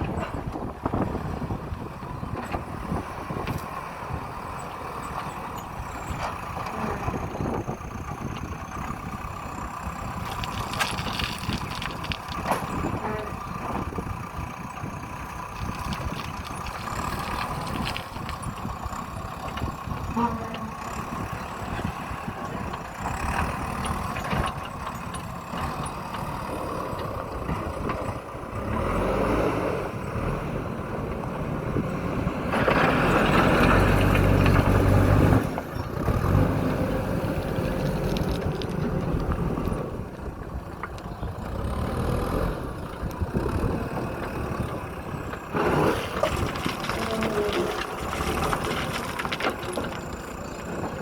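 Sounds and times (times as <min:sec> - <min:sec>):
backhoe diesel engine revving: 0:00.0 - 0:51.0.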